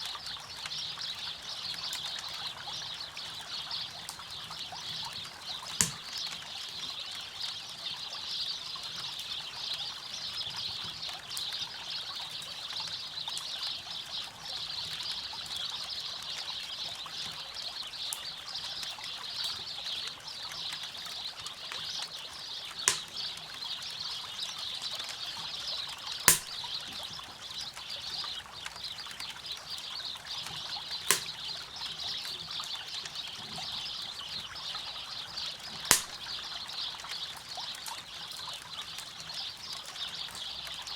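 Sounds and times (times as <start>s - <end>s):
campfire wood popping: 5.8s - 6.2s, 22.9s - 23.4s, 26.3s - 26.8s, 31.1s - 31.8s, 35.9s - 36.4s
river water running over rocks: 22.9s - 23.1s.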